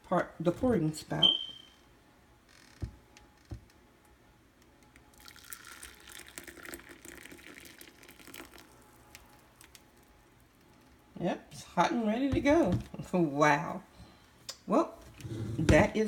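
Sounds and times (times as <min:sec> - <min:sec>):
water pouring from kettle: 0:05.2 - 0:08.8.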